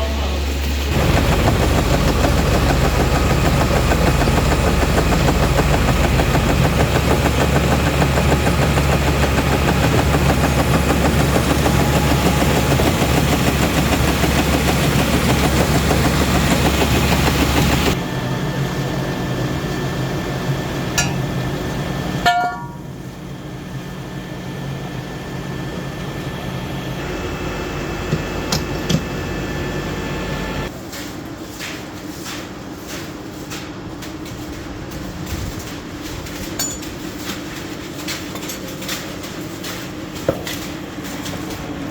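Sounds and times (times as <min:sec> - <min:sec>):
heavy machinery engine running: 0:00.0 - 0:30.7.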